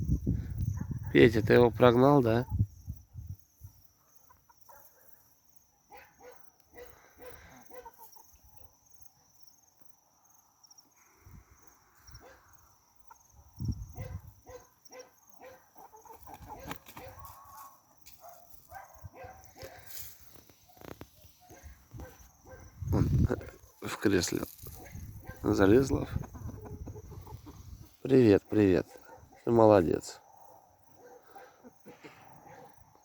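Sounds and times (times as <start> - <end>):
chickens clucking softly: 6.3 - 8.7, 12.1 - 18.1, 20.8 - 29.2.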